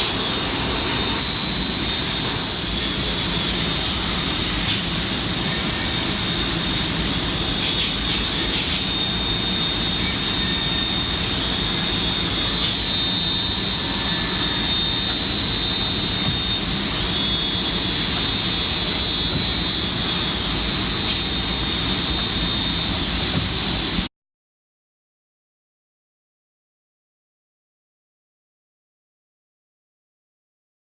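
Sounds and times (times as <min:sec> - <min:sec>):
lathe humming with high whine: 0:00.0 - 0:24.1.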